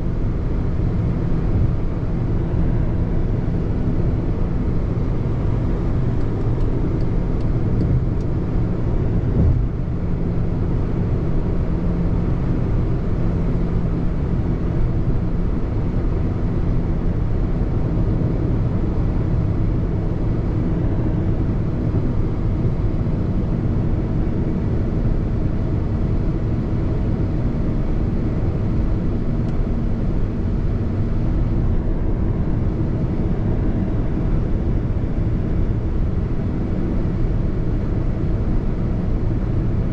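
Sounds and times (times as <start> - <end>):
car engine and road noise: 0.0 - 39.9
brief thump: 9.4 - 9.7.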